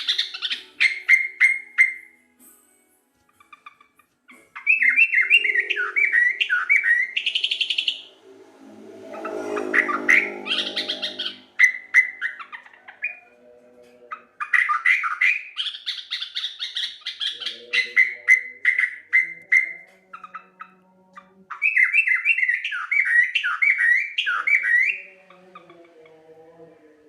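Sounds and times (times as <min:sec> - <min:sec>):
bulbul singing rapid notes: 0:04.6 - 0:08.4.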